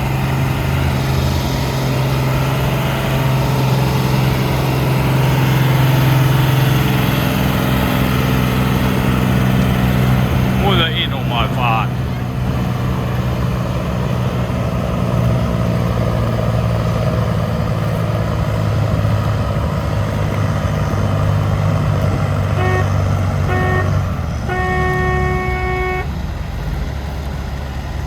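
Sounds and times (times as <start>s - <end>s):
tractor diesel engine running hard: 0.0s - 28.0s
horn toots and blast: 22.5s - 26.2s.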